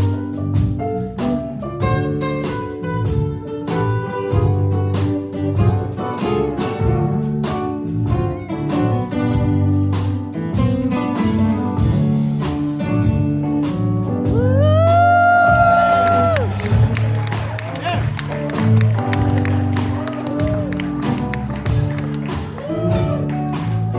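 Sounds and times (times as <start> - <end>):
live rock band playing: 0.0 - 23.9.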